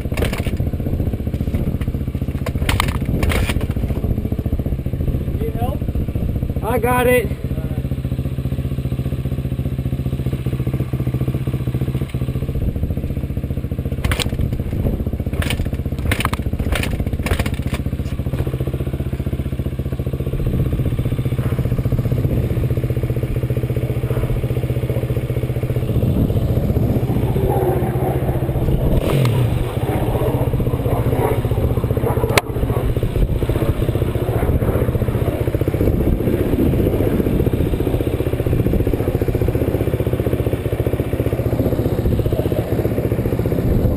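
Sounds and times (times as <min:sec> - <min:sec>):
sharp clicks and rattles: 0:00.0 - 0:04.2, 0:13.9 - 0:18.7, 0:20.4 - 0:36.5
off-road vehicle engine running: 0:00.0 - 0:43.9.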